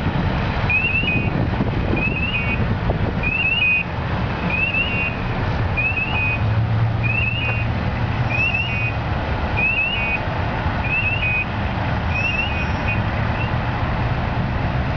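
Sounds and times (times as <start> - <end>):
diesel engine idling: 0.0 - 14.9
truck warning alarm chirps and beep: 0.7 - 2.6, 3.2 - 7.7, 8.3 - 9.0, 9.6 - 11.5, 12.1 - 13.6.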